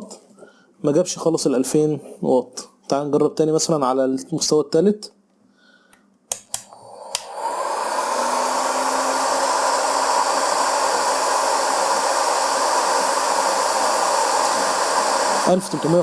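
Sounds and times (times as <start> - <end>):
clicks: 6.0 - 7.3
heat gun blowing air: 6.5 - 16.0.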